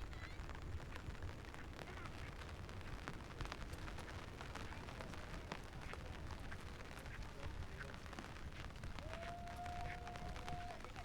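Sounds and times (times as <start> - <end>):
rain drops ticking: 0.0 - 11.0.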